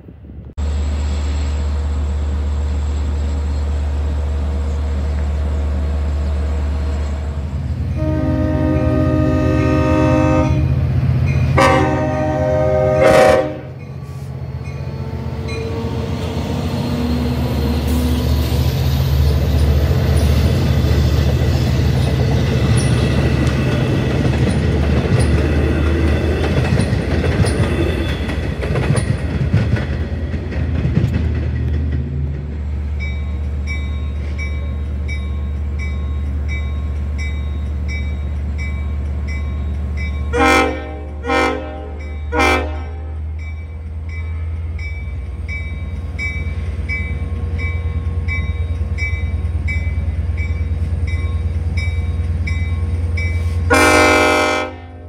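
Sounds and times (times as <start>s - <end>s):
train wheels rumbling on rails: 0.0s - 55.0s
crossing bell dinging: 7.7s - 16.0s, 19.5s - 29.4s, 32.8s - 54.5s
diesel locomotive horn: 7.8s - 14.3s, 40.3s - 43.4s, 53.4s - 55.0s.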